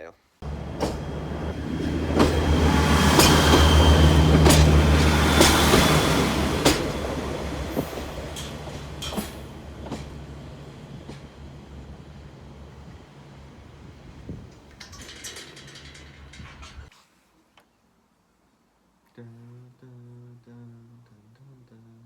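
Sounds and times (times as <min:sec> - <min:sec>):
train engine humming: 0:00.4 - 0:16.9
train wheels clicking on rail joints: 0:00.4 - 0:16.9.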